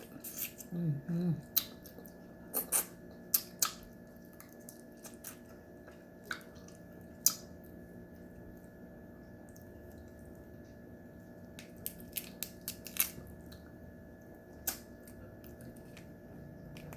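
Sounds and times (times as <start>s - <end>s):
faint steady hum: 0.0s - 16.9s
eating clicks and wet smacks: 1.5s - 7.7s, 14.5s - 16.1s.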